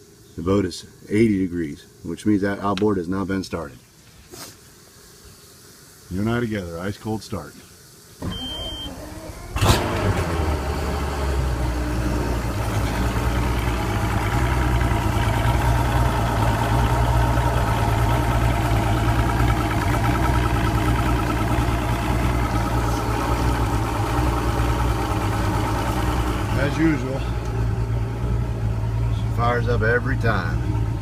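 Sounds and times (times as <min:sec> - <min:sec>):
outboard motor starting and idling: 0:08.2 - 0:31.0.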